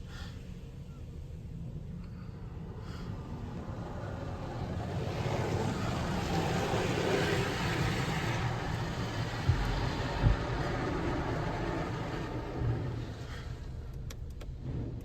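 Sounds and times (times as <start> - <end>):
low machinery rumble: 0.0 - 15.0
car wash water spray: 2.6 - 15.0
thumps on car: 9.3 - 10.9.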